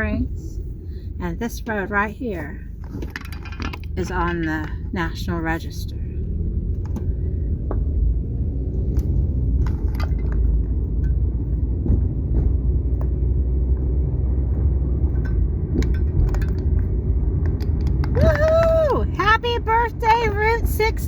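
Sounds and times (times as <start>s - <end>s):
car interior road rumble: 0.0s - 21.0s
small clicks and rattles: 2.8s - 4.9s, 9.0s - 11.2s, 15.2s - 18.2s.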